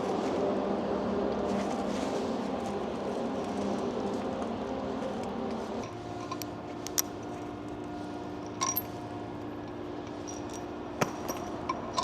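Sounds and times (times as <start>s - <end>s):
metallic clinks of tools: 8.5s - 9.0s.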